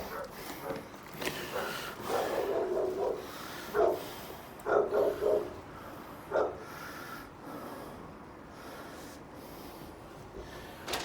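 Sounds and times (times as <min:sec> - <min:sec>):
dog barking: 0:00.0 - 0:00.8, 0:01.5 - 0:05.6, 0:06.3 - 0:06.6.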